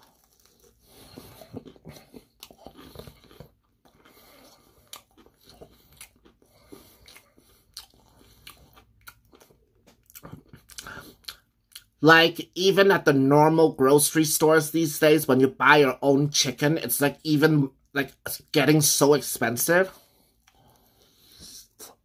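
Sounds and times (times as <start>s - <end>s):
chewing crispy fried chicken: 0.0s - 12.0s, 20.0s - 22.0s.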